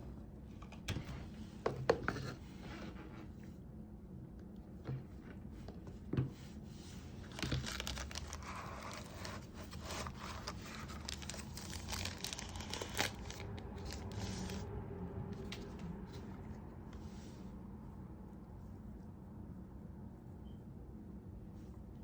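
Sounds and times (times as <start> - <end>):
wrapping crinkling and rustling: 7.1 - 14.7.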